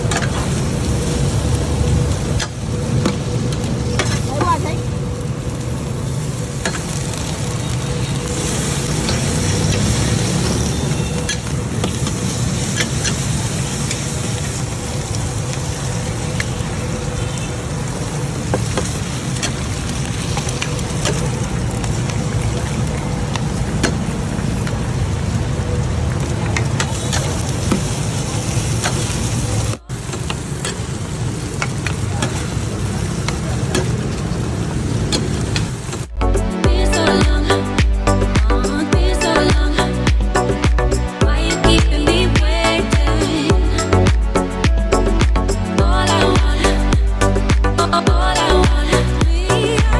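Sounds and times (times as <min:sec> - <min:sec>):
street traffic hum: 0:00.0 - 0:49.9
cake sizzling in oil: 0:05.7 - 0:25.6.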